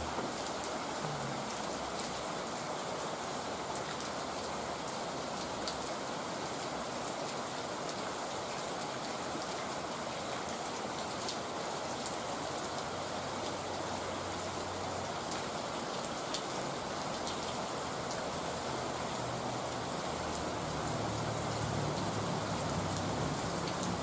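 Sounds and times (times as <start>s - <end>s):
heavy rain hissing: 0.0s - 3.8s, 11.6s - 24.0s.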